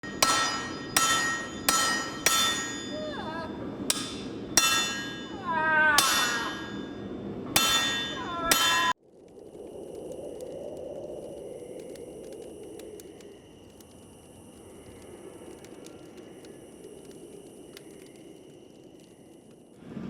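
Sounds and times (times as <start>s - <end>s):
hammer blows on anvil: 0.0s - 9.0s
high falling cries: 0.0s - 9.0s
steady background noise: 0.0s - 10.2s.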